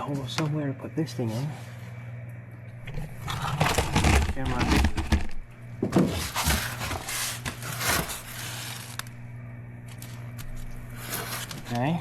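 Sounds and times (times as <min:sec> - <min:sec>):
steady low hum: 0:00.0 - 0:12.0
rustling and scraping: 0:02.9 - 0:09.1, 0:09.8 - 0:12.0.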